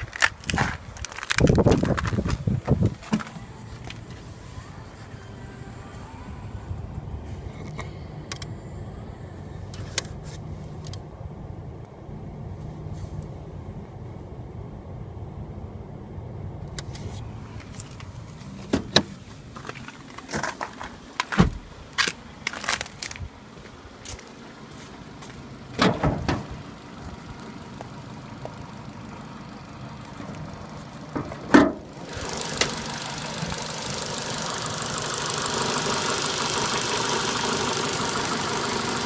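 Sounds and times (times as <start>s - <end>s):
car low steady rumble: 0.0s - 39.0s
sharp knocks and clunks: 25.8s - 26.5s, 31.1s - 31.9s.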